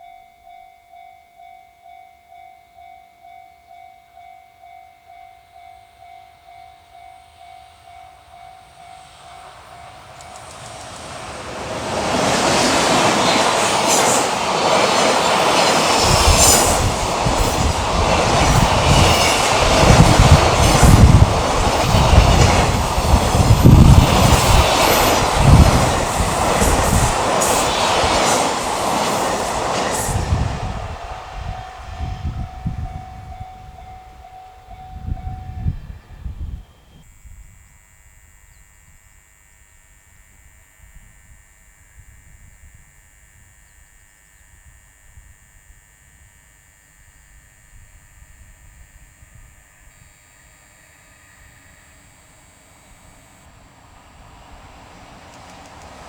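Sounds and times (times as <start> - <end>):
freight train passing: 5.1 - 37.0, 49.7 - 56.0
heavy thumps of train: 9.8 - 33.1.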